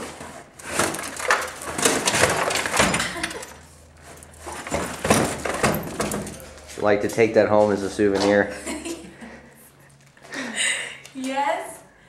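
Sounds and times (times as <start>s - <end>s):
knocks and clanks: 0.7s - 3.5s, 4.4s - 6.6s.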